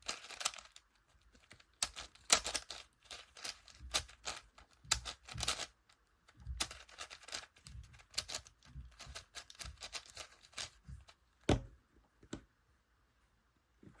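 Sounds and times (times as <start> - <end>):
plastic puzzle cube clicking: 0.0 - 0.8, 1.4 - 5.8, 6.6 - 10.8.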